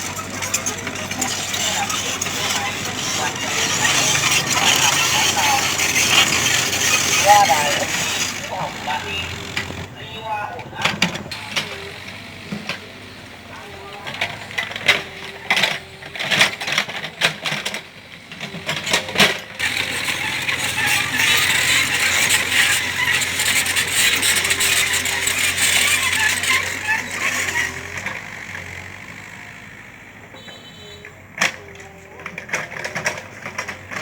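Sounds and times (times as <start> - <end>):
metallic clanks and knocks: 0.0 - 9.9
excavator engine hum: 0.0 - 34.0
excavator scraping soil and stones: 0.0 - 34.0.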